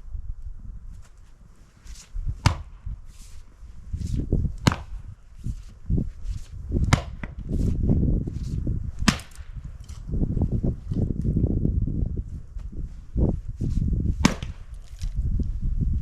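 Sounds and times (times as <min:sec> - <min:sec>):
rough scuffing and rumbling: 0:00.6 - 0:16.0
axe striking firewood: 0:02.4 - 0:02.9, 0:04.0 - 0:05.1, 0:06.8 - 0:07.6, 0:08.4 - 0:10.1, 0:14.1 - 0:15.2.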